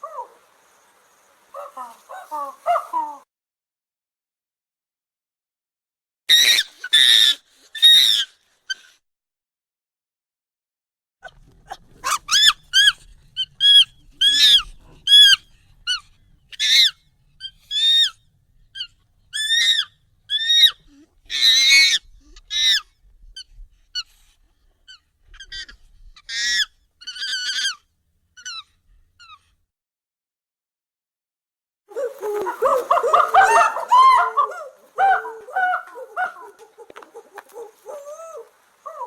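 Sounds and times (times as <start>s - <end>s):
harsh monkey call: 1.5s - 3.2s, 6.3s - 8.9s, 11.2s - 18.2s, 18.8s - 24.1s, 24.9s - 27.8s, 28.4s - 29.4s, 31.9s - 39.0s
monkey shrieking: 6.3s - 8.8s, 11.2s - 18.2s, 18.8s - 22.9s, 24.9s - 27.8s, 28.4s - 28.6s, 31.9s - 39.0s.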